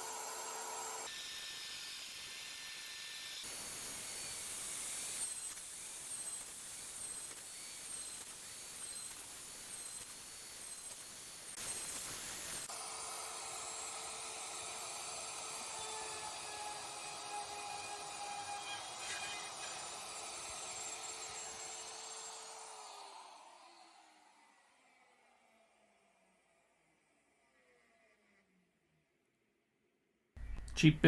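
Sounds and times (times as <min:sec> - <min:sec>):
machine motors whining: 0:15.0 - 0:24.3.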